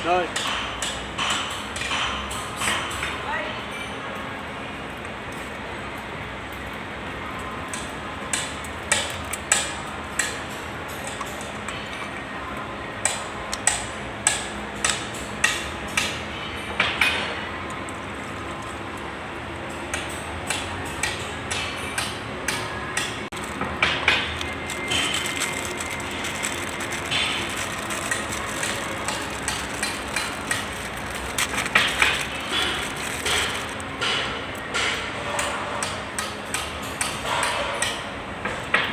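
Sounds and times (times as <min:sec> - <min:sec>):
sharp taps on metal: 0:00.3 - 0:03.1.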